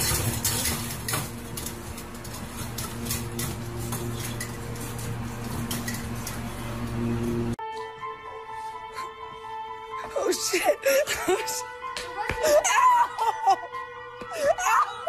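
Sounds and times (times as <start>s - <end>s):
metal bowl clinking against cage: 0.0s - 7.0s.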